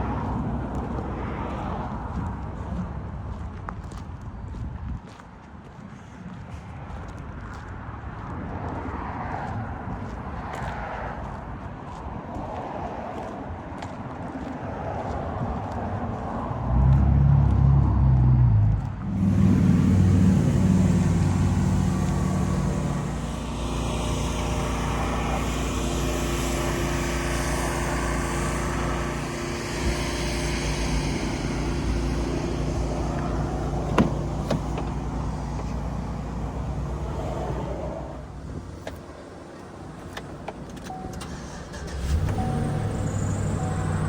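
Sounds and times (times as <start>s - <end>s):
truck engine running: 16.1s - 44.0s.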